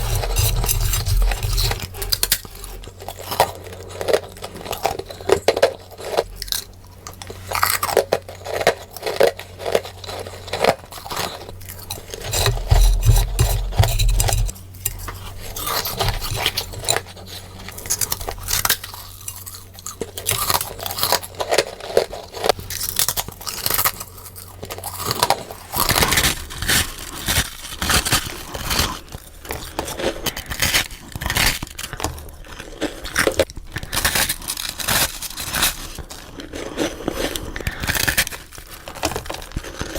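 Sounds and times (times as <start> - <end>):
low hum: 0.0 - 3.2, 11.5 - 18.4.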